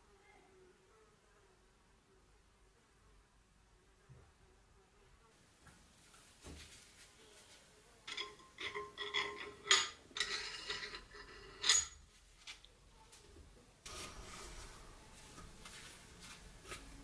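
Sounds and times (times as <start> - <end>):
metal pieces clinking: 8.1 - 12.0.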